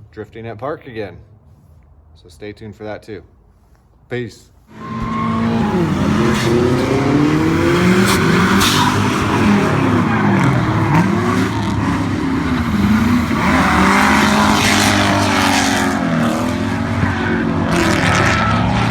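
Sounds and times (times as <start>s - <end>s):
car engine revving: 4.7s - 18.9s.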